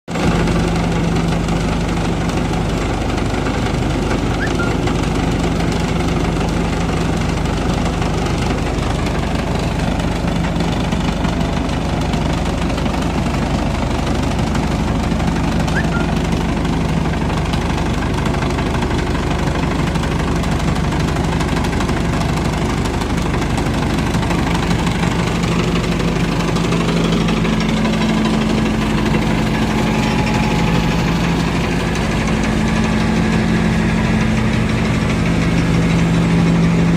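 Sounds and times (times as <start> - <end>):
machine drone and rattle: 0.1 - 36.9
second low hum tone: 15.7 - 16.2.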